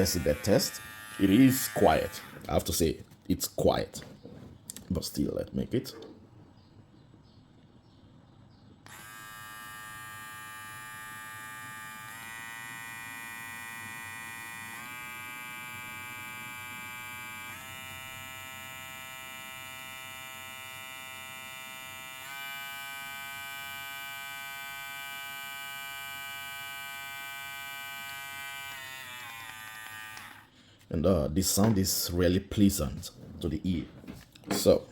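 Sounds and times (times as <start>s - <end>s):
hair clipper whining: 0.0s - 2.6s, 8.8s - 30.9s.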